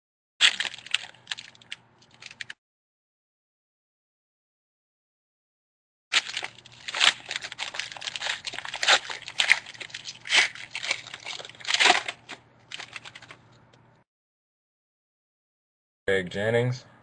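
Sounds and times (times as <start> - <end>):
foil wrapper crinkling and ripping: 0.4 - 2.6, 6.1 - 13.4.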